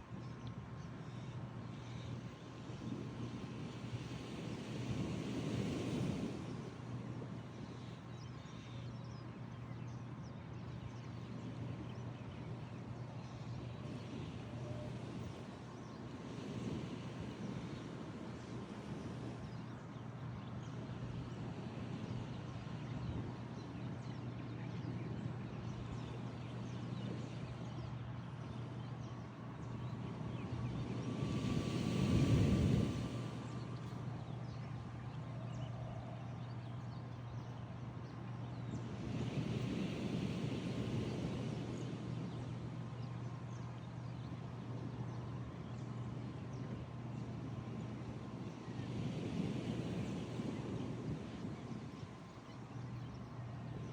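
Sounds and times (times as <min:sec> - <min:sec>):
low hum and rumble: 0:00.0 - 0:53.9
wind: 0:00.0 - 0:53.9
ocean surf: 0:30.8 - 0:34.1.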